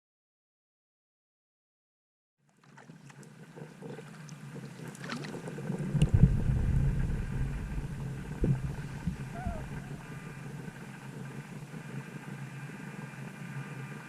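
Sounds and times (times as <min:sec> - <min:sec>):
paddle and water against hull: 0:02.5 - 0:12.2
dull knocks: 0:05.9 - 0:10.3.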